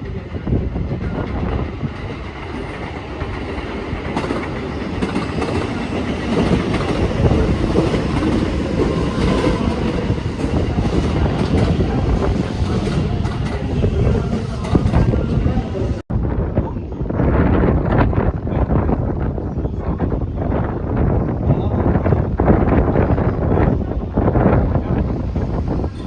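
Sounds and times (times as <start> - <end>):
train wheels clattering: 1.9 - 15.3.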